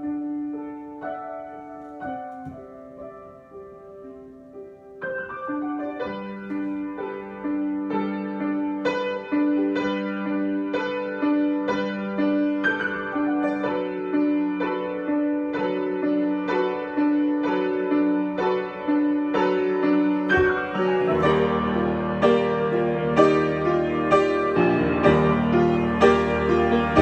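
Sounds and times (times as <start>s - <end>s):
solo piano improvisation: 0.0s - 27.0s.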